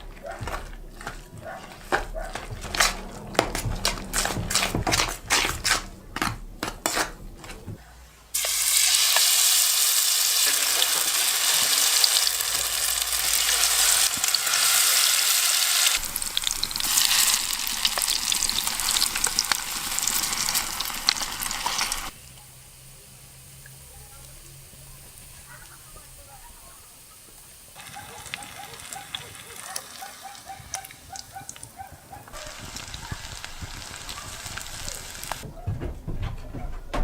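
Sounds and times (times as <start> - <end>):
food sizzling in a pan: 8.3 - 31.3, 32.4 - 35.4.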